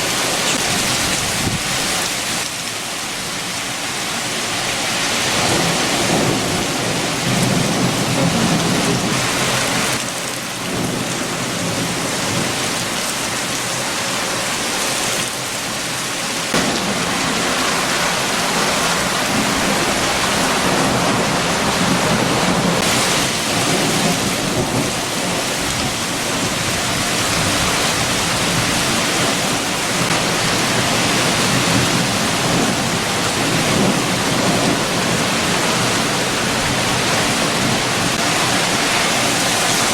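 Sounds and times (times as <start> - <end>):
strong wind: 0.0 - 2.5, 4.3 - 39.9
heavy rain: 0.0 - 39.9.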